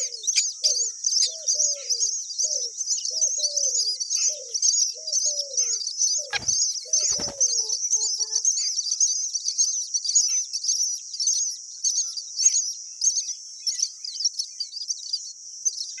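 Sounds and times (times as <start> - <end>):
low cooing: 0.0 - 8.1
myna birds chirping: 0.0 - 16.0.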